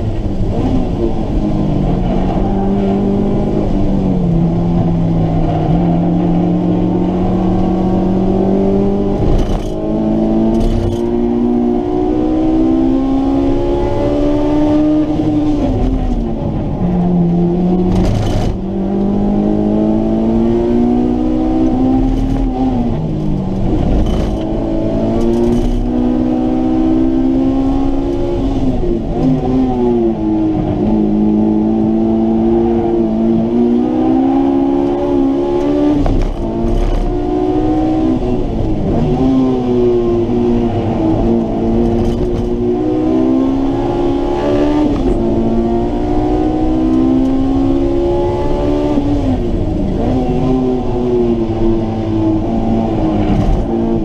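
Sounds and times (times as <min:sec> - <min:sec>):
car engine accelerating and downshifting: 0:00.0 - 0:54.0.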